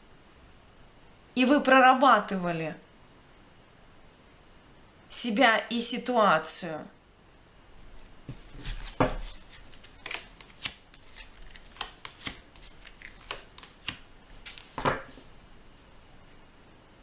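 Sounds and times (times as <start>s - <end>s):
cards snapping and flicking: 8.5s - 15.3s.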